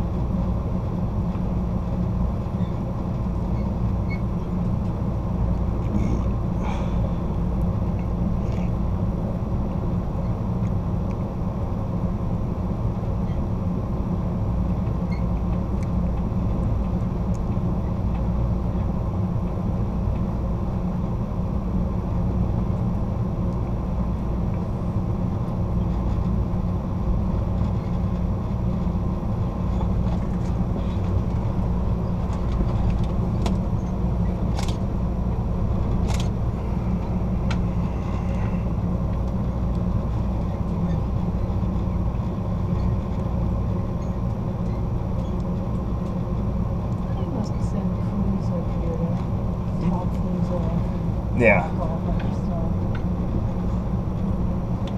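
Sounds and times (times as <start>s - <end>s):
train wheels rumbling on rails: 0.0s - 54.9s.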